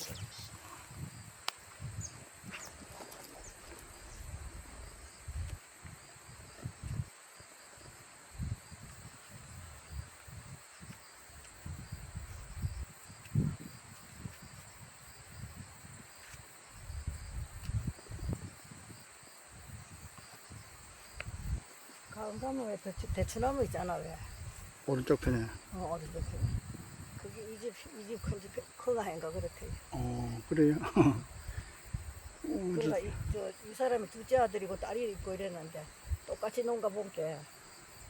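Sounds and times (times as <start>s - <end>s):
crickets chirping: 0.0s - 38.0s
low rumbles on the microphone: 25.4s - 27.4s.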